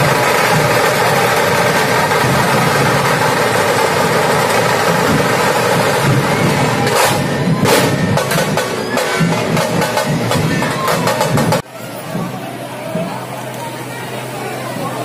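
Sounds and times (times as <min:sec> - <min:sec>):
sharp drum strikes: 0:00.0 - 0:11.7
drum rolls: 0:00.0 - 0:15.0.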